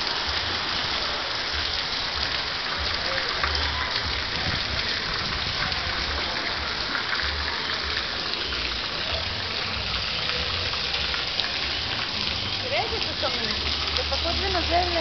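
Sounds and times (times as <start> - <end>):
heavy rain on wet street: 0.0 - 15.0.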